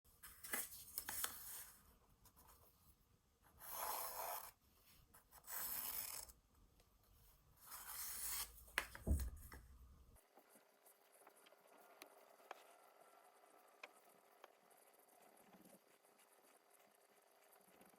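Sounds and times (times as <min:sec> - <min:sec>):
pencil scratching on paper: 0:03.4 - 0:06.4, 0:07.6 - 0:08.6, 0:14.3 - 0:17.9.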